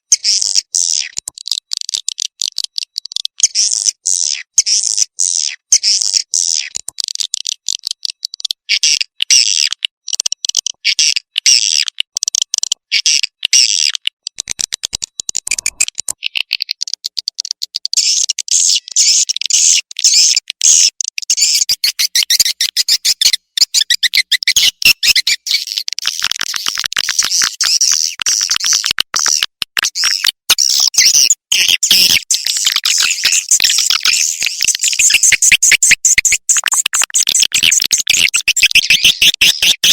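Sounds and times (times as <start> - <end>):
swiftlets twittering and chirping: 13.0 - 39.9.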